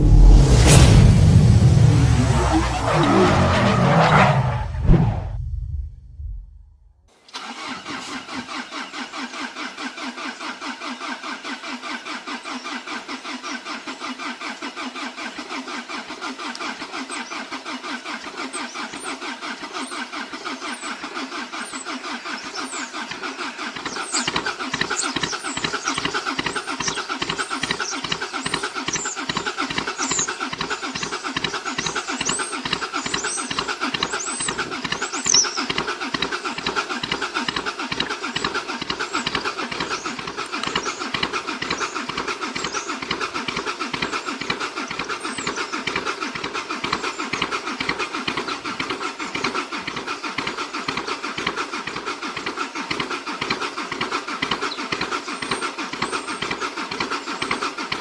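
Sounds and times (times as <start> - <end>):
diesel car engine chugging: 0.0 - 6.6, 7.4 - 58.0
birds chirping: 18.3 - 37.4, 38.3 - 46.0, 54.5 - 57.8.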